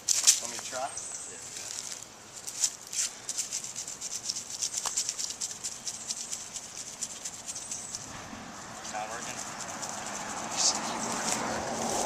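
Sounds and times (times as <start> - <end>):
scraping strokes: 1.5 - 12.0.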